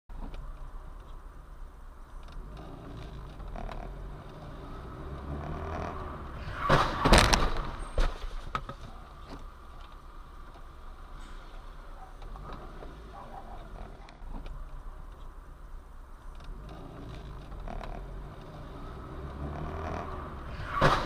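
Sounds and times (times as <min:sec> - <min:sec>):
road rumble: 0:00.1 - 0:21.0
vehicle crash: 0:05.8 - 0:08.9, 0:20.4 - 0:21.0.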